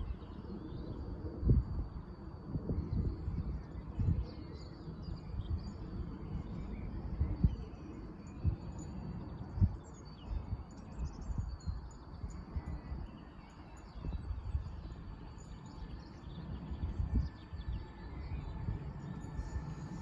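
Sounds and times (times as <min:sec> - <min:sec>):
low background rumble: 0:10.5 - 0:20.0.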